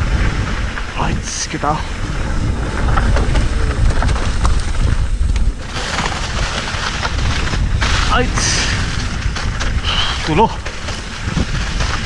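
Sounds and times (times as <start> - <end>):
wind buffeting microphone: 0.0 - 12.0
mountain bike rattling on trail: 1.7 - 12.0
bike clicks and knocks: 8.9 - 12.0.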